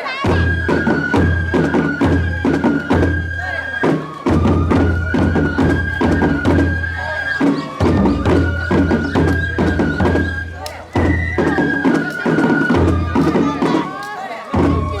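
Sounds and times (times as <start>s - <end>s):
high flute playing: 0.0s - 15.0s
sharp percussion strikes: 0.0s - 15.0s.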